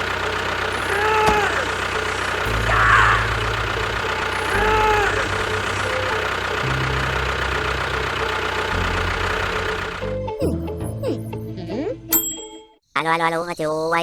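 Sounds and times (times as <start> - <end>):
engine idling with knocking: 0.0 - 10.4.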